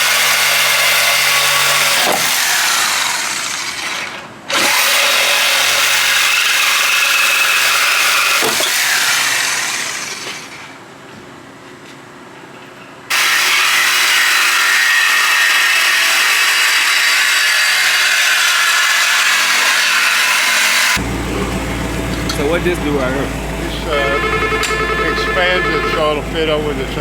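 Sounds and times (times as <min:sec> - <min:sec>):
power tool cutting pipe: 0:00.0 - 0:10.7, 0:13.1 - 0:21.0.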